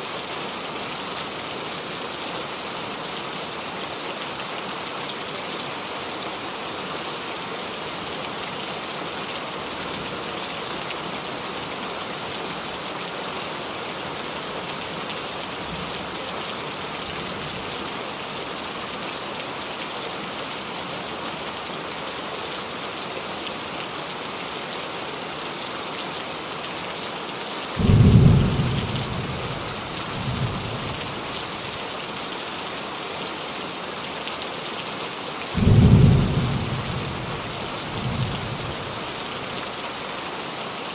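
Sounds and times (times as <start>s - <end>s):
rain falling on a roof: 0.0s - 40.9s
thunder clap rumbling: 27.8s - 30.9s.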